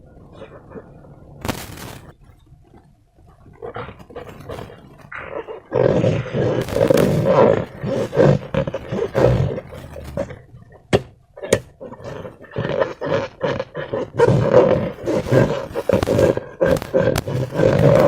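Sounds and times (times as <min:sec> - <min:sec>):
slime squelching: 0:13.6 - 0:18.0.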